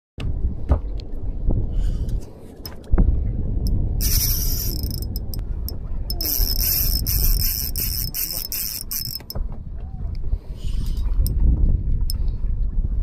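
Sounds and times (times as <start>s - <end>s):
steady low rumble: 0.2s - 13.0s
fishing reel drag screaming: 4.0s - 5.4s, 6.1s - 9.4s.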